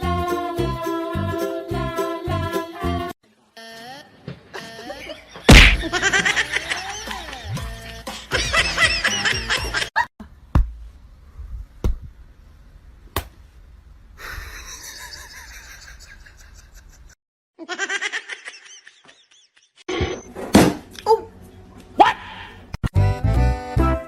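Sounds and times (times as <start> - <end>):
person laughing: 4.6 - 10.1, 14.2 - 19.8.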